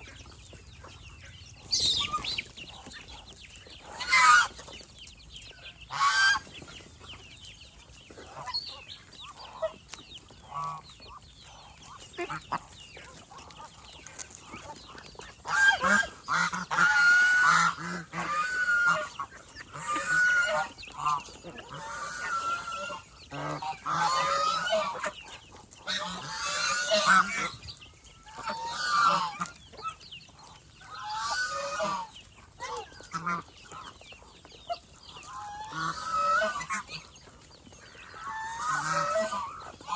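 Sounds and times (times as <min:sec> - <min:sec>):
geese honking: 0:00.0 - 0:04.7, 0:05.8 - 0:06.7, 0:10.4 - 0:34.0, 0:34.6 - 0:37.1, 0:37.8 - 0:39.9
soft fowl calls: 0:05.9 - 0:06.4, 0:15.4 - 0:25.2, 0:28.2 - 0:30.0, 0:30.8 - 0:34.0, 0:38.0 - 0:39.9.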